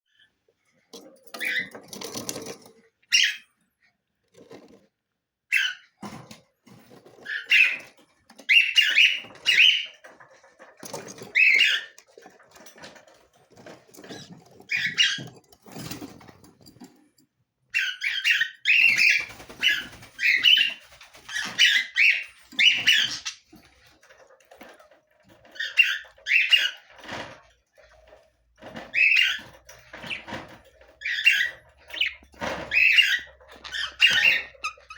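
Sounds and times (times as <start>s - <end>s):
budgerigars chirping and squawking: 3.1s - 3.5s, 5.5s - 12.2s, 13.5s - 16.1s, 17.7s - 23.5s, 25.3s - 27.4s, 28.6s - 34.9s.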